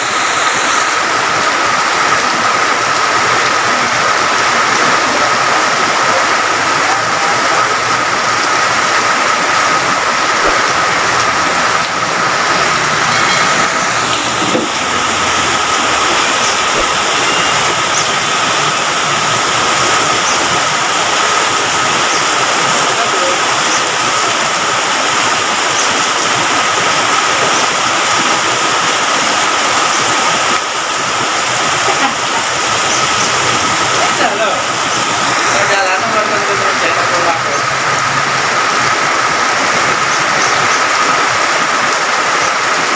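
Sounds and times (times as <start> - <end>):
heavy rain pouring: 0.0 - 42.9
thin steady high tone: 8.8 - 25.0.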